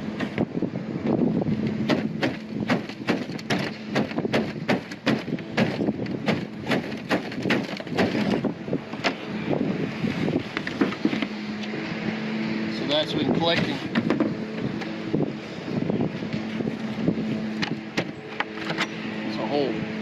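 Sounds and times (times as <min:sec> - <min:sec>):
clicks and knocks on tin roof: 0:01.9 - 0:08.4.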